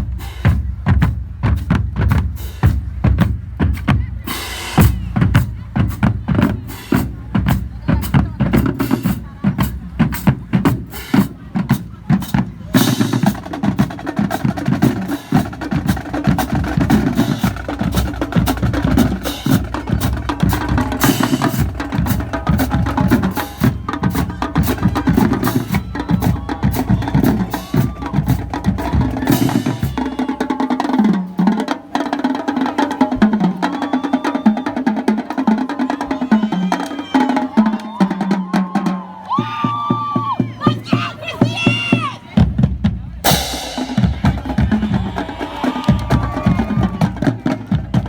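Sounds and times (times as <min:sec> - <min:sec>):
pounding bass drums: 0:00.0 - 0:30.4, 0:41.4 - 0:48.0
snare and tenor drum strokes: 0:00.0 - 0:35.8, 0:42.4 - 0:48.0.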